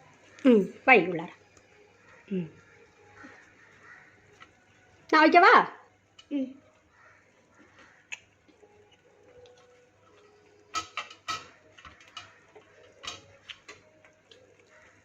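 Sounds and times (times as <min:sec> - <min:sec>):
utensil clinking against pot: 0:10.7 - 0:13.8.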